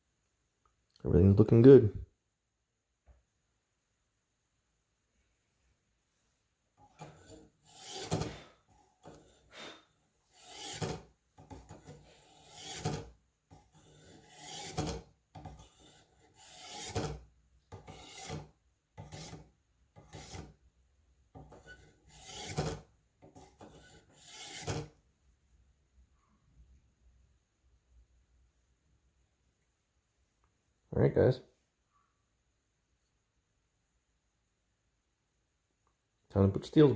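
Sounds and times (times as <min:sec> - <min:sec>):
knife scraping through sharpener: 0:07.0 - 0:08.5, 0:10.3 - 0:17.2, 0:17.8 - 0:19.4, 0:20.0 - 0:20.5, 0:21.4 - 0:22.8, 0:23.4 - 0:24.9.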